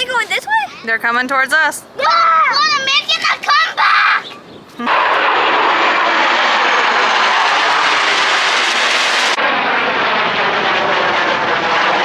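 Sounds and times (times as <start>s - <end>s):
jets roaring past overhead: 4.8s - 12.0s.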